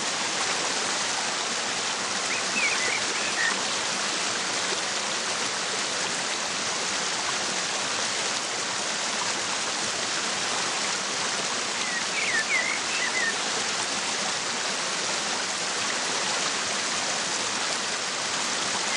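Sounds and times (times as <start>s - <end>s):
waterfall rushing: 0.0s - 18.9s
bird chirps: 2.3s - 3.6s, 11.8s - 13.3s.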